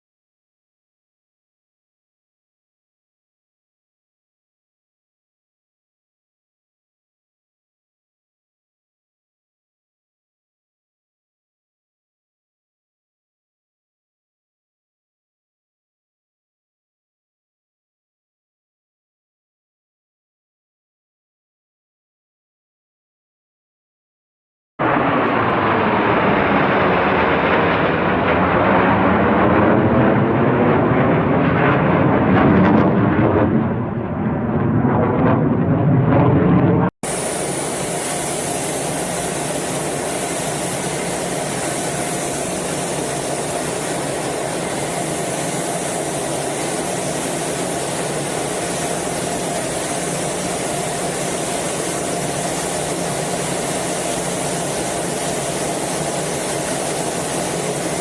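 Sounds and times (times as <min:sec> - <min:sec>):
military jet roaring overhead: 0:24.8 - 0:58.0
steady jet noise rush: 0:37.0 - 0:58.0.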